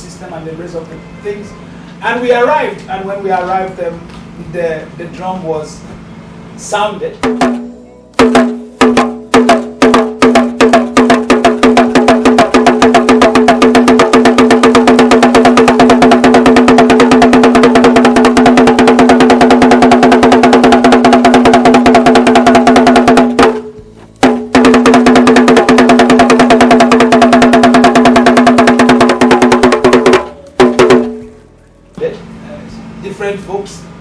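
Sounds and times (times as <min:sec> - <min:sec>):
drum beaten in fast strokes: 0:07.2 - 0:31.3.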